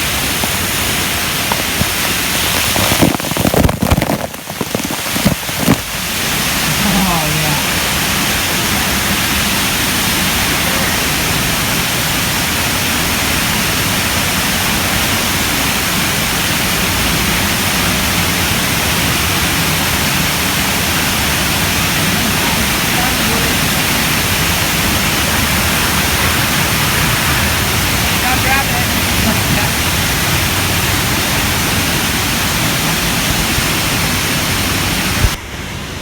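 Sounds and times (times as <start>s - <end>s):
rushing water: 0.0s - 36.0s
indistinct voices: 6.2s - 12.5s, 19.6s - 31.8s.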